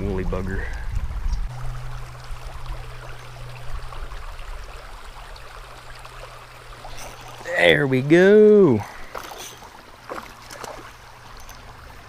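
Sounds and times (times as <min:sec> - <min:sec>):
low hum: 0:00.0 - 0:07.5
river water flowing: 0:00.0 - 0:12.0.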